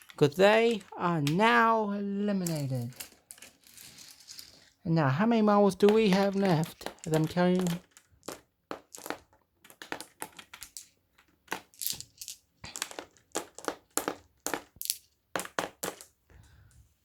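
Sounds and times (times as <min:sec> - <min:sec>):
marbles clicking together: 0:02.4 - 0:04.6, 0:05.8 - 0:10.9, 0:11.5 - 0:16.1.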